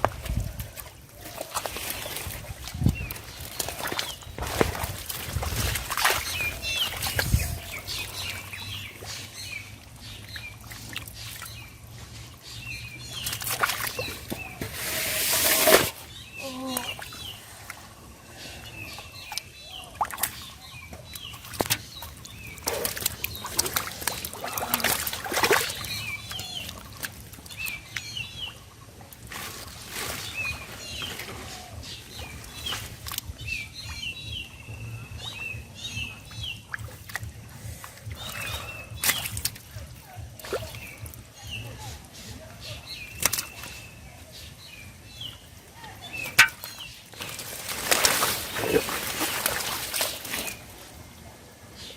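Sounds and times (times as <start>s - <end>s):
water splashing: 0.0s - 12.4s, 13.1s - 17.9s, 19.3s - 28.6s, 45.4s - 51.6s
birds chirping: 0.3s - 51.9s.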